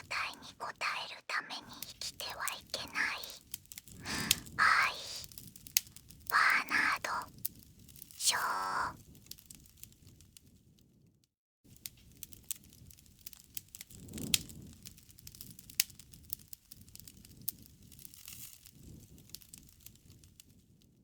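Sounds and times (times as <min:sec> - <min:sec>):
bonfire crackling and popping: 0:01.6 - 0:10.9, 0:11.7 - 0:21.0
low rumble of flame: 0:11.7 - 0:21.0.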